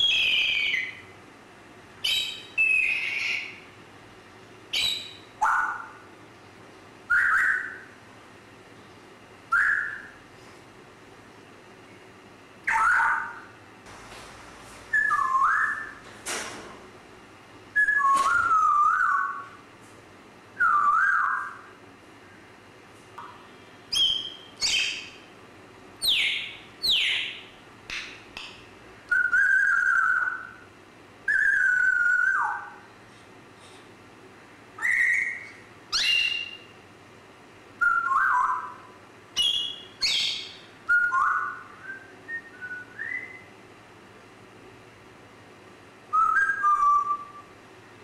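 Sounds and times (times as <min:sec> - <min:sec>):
parrot calling and whistling: 0:00.0 - 0:01.1, 0:02.0 - 0:03.6, 0:04.7 - 0:06.0, 0:07.1 - 0:08.0, 0:09.5 - 0:10.2, 0:12.6 - 0:13.6, 0:14.9 - 0:16.1, 0:17.7 - 0:19.6, 0:20.6 - 0:21.7, 0:23.9 - 0:25.2, 0:26.0 - 0:27.5, 0:29.1 - 0:30.6, 0:31.2 - 0:32.8, 0:34.8 - 0:36.7, 0:37.8 - 0:43.4, 0:46.1 - 0:47.5.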